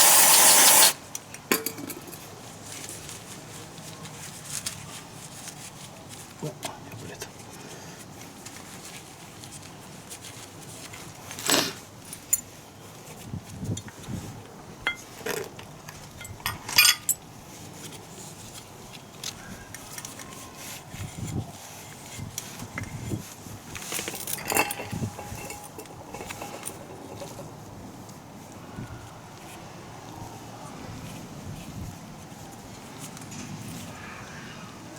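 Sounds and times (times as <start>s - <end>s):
metal tools clinking: 1.5s - 2.3s, 14.9s - 17.2s, 23.8s - 27.6s.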